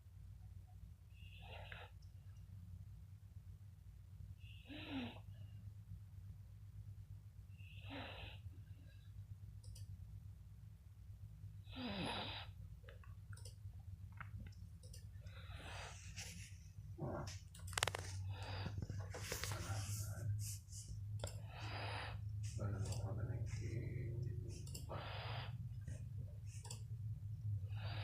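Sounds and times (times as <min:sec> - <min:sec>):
steady low hum: 0:00.0 - 0:28.0
dog snoring: 0:11.7 - 0:12.5
clicks: 0:12.8 - 0:15.1.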